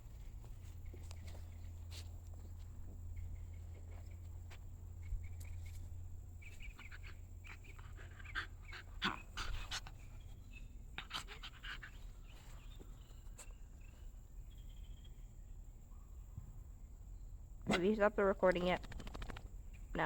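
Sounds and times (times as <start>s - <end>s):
dog panting: 6.4s - 13.5s.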